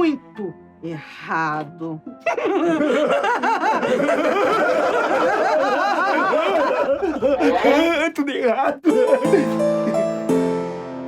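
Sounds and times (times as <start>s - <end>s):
voices cackling with laughter: 2.3s - 7.8s.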